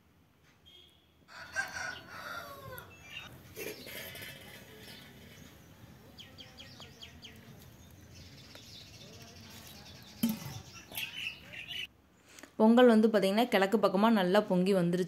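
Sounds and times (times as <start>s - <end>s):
faint outdoor background noise: 0.0s - 15.0s
small bird chirping: 4.8s - 11.9s.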